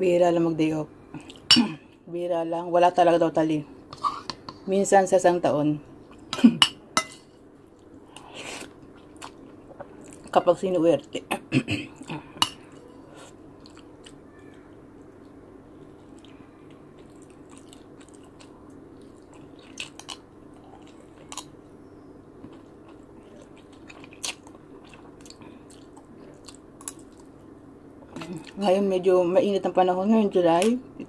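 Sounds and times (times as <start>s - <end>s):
steady low hum: 0.0s - 31.0s
person chewing: 7.7s - 10.3s, 12.0s - 21.6s, 22.4s - 28.6s.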